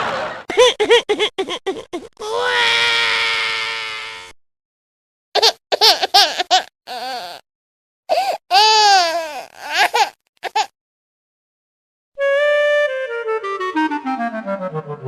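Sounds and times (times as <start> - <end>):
baby crying: 0.6 - 4.4, 5.4 - 7.4, 8.1 - 10.7.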